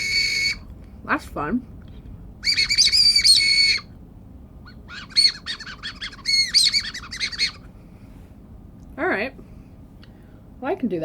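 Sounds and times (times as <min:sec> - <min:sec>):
whistle candy whistling: 0:00.0 - 0:00.7, 0:02.4 - 0:03.9, 0:04.8 - 0:07.6.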